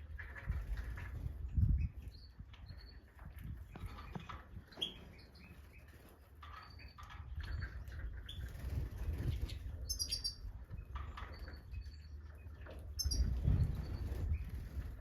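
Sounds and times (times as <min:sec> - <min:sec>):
goldfinches chirping: 0:09.3 - 0:12.2, 0:12.9 - 0:14.6.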